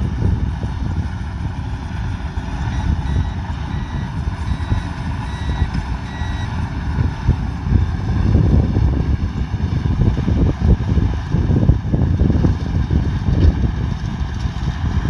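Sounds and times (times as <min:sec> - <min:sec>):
diesel engine rumbling: 0:00.0 - 0:15.0
faint reversing alarm beeps: 0:02.6 - 0:07.3.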